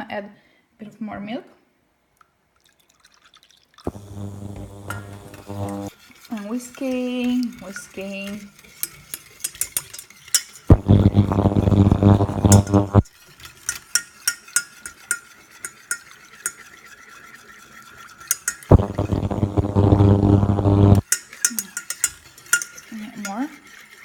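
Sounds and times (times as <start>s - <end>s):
loud electric hum: 3.9s - 5.9s, 10.7s - 13.1s, 18.7s - 21.0s
whisk clicking against saucepan: 6.0s - 10.7s, 13.4s - 18.7s, 21.1s - 24.0s.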